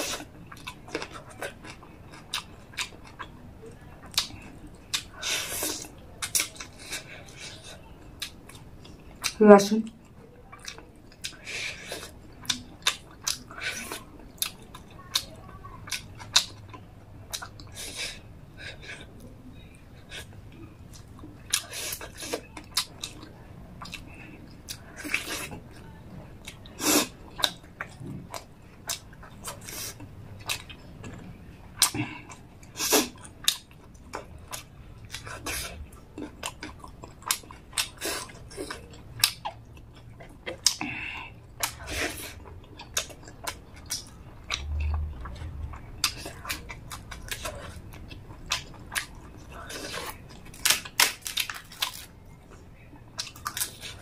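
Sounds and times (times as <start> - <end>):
chewing and lip-smacking: 0.0 - 54.0.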